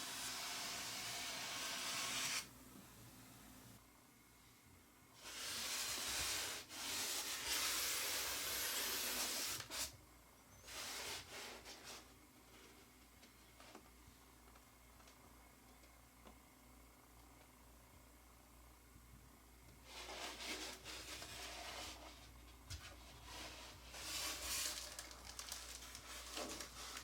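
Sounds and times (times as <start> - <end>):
packaging rustling: 24.0 - 27.0.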